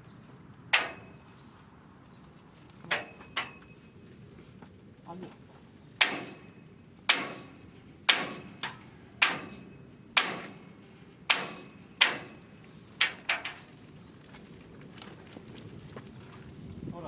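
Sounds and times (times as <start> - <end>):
hammer striking metal frame: 0.7 - 1.3, 2.9 - 3.7, 6.0 - 13.7.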